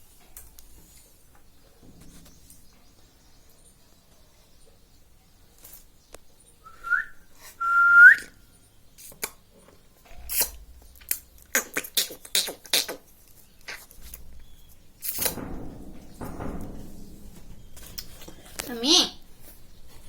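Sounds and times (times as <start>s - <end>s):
parrot whistling: 6.7s - 8.3s.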